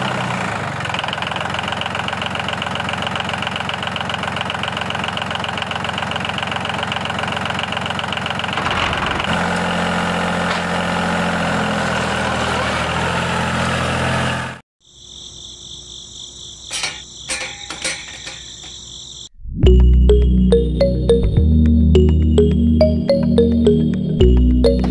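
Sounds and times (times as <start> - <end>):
diesel tractor engine chugging: 0.0 - 14.6
insect-like chirping: 14.8 - 19.4.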